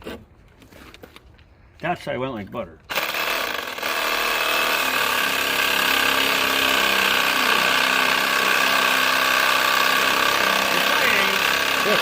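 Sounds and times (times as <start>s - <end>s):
reciprocating saw cutting metal: 2.9s - 12.0s.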